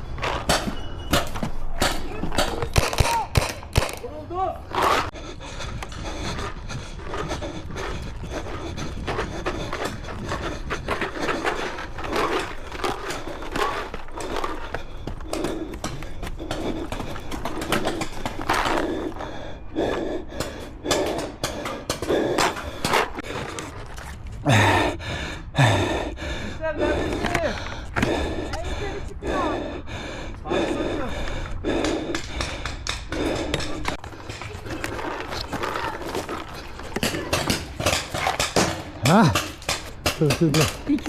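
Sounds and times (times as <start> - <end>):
heavy breathing: 3.6 - 41.0
rustling and scraping: 5.8 - 19.2, 22.4 - 24.4, 33.4 - 39.0.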